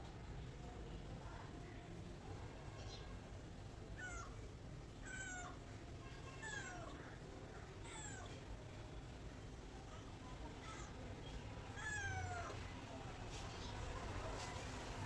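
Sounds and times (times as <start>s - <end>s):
cat meowing: 11.8s - 12.6s.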